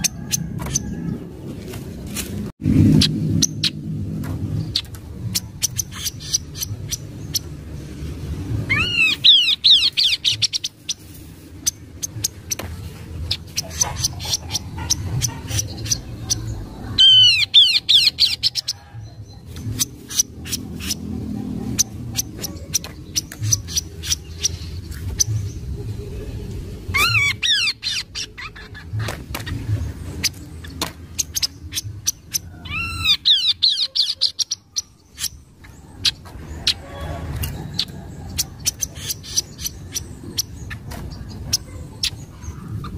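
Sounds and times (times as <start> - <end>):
steady low hum: 0.0 - 33.6.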